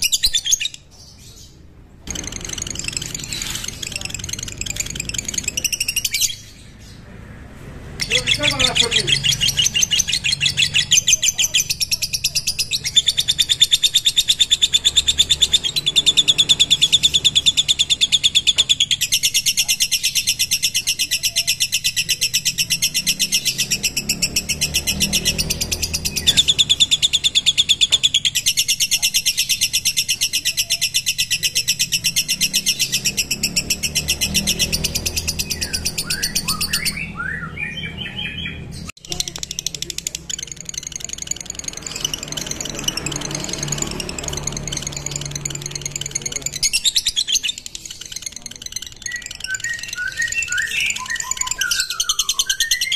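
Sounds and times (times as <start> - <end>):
bird chirps: 0.0 - 7.1, 7.8 - 52.9
lovebird chattering trill: 2.1 - 7.0, 8.0 - 52.9.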